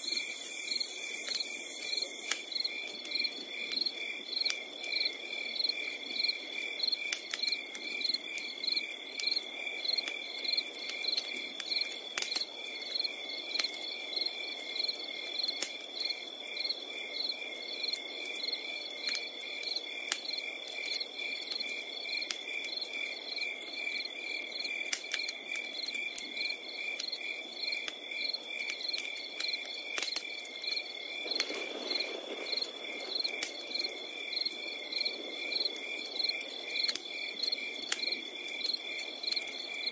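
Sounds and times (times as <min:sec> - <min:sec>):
fire hiss: 0:00.0 - 0:04.1
campfire crackling and popping: 0:00.0 - 0:39.9
cricket chirping: 0:00.0 - 0:39.9
crickets trilling: 0:00.0 - 0:39.9.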